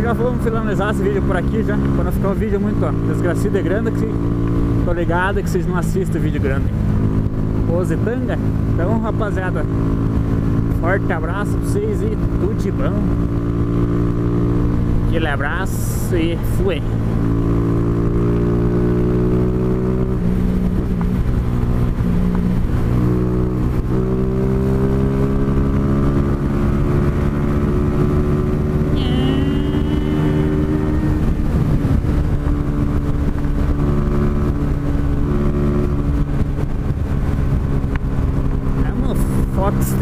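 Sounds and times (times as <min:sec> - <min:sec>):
motorcycle engine running: 0:00.0 - 0:40.0
wind rushing over microphone: 0:12.1 - 0:40.0.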